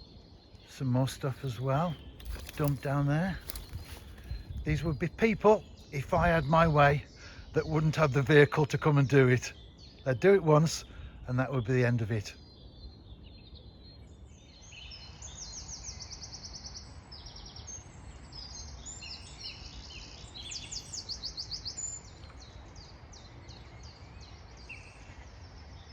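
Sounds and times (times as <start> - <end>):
songbirds singing: 0.0 - 25.9
steady low rumble: 0.7 - 8.4.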